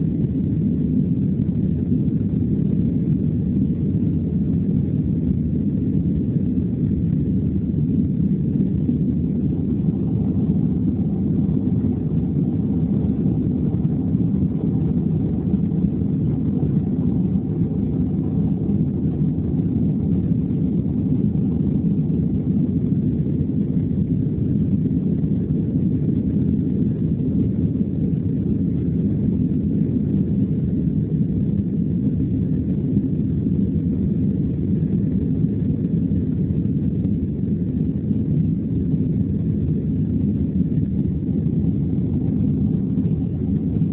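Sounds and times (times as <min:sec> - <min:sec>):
airplane cabin engine noise: 0:00.0 - 0:43.9
faint thin whine: 0:00.0 - 0:43.9.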